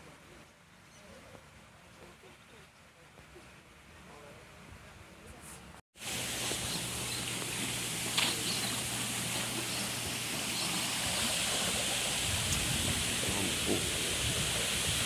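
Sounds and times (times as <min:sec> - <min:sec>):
running water rushing: 0:06.0 - 0:15.0.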